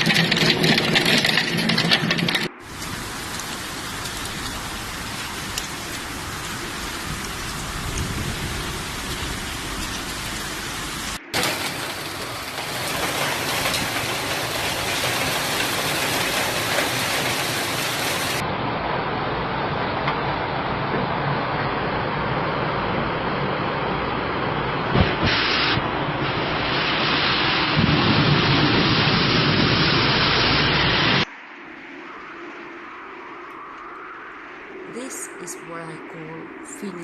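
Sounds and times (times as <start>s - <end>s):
heavy rain falling: 0.0s - 18.5s, 23.4s - 31.3s.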